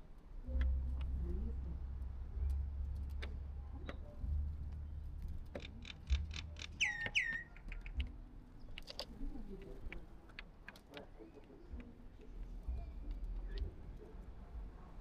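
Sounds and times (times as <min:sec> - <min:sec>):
low rumble: 0:00.3 - 0:06.6
sharp taps and clicks: 0:05.3 - 0:11.1
bird calls gliding down: 0:05.8 - 0:08.0.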